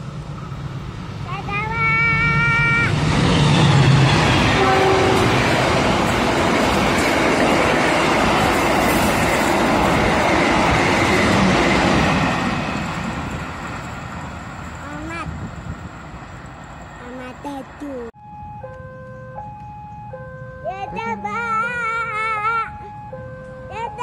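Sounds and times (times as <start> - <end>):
train wheels clattering on rail: 3.0 - 14.8
train horn blast: 3.7 - 5.8.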